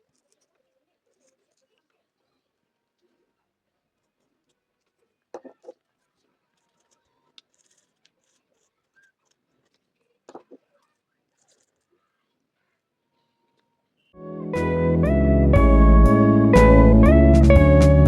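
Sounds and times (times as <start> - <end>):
small objects clicking and scratching: 0.0 - 2.0, 4.0 - 12.4.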